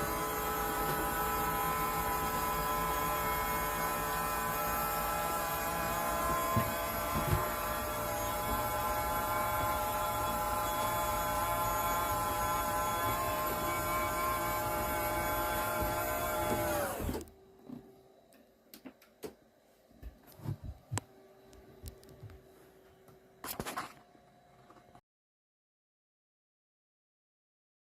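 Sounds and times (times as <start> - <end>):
electric motor whining: 0.0 - 17.3.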